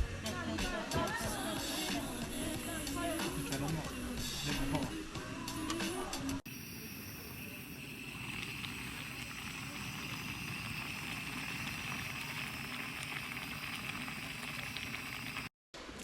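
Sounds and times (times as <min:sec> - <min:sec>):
stew bubbling in a pot: 0:06.4 - 0:15.5.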